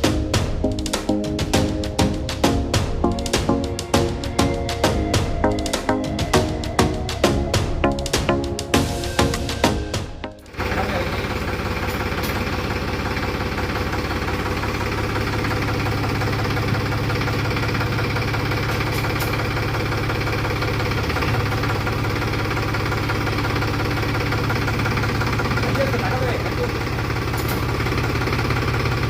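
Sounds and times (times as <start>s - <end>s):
tractor diesel engine idling: 0.0s - 29.0s.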